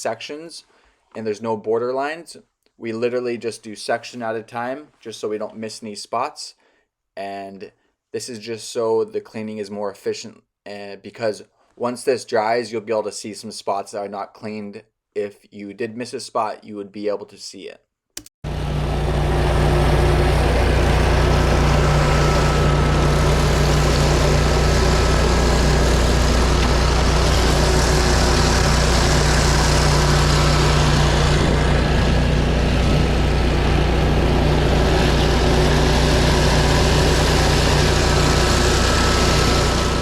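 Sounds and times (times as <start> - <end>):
pressure washer engine running: 18.4 - 40.0
high-pressure water spraying: 18.7 - 40.0.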